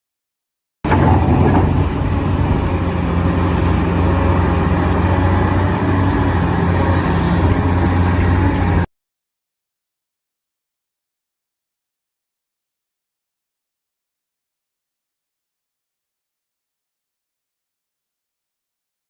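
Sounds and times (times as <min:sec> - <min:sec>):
engine-like drone: 0:00.9 - 0:08.9.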